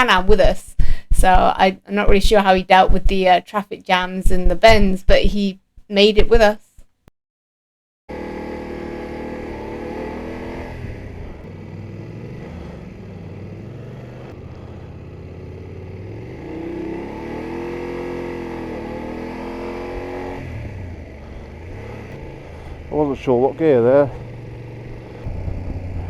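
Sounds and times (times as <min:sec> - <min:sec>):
motorcycle engine running: 0:08.1 - 0:26.0.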